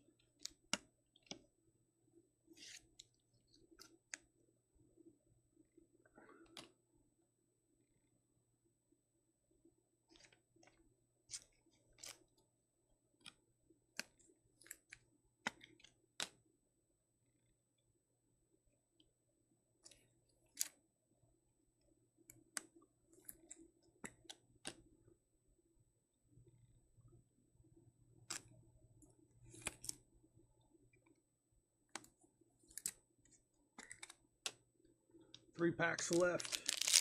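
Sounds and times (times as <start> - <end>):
cards clicking and scraping plastic: 2.5 - 4.3, 10.1 - 12.4, 13.2 - 16.4, 19.8 - 20.8, 22.3 - 24.9, 28.2 - 28.6, 29.4 - 30.0, 32.0 - 33.0, 33.7 - 34.6, 35.3 - 37.0.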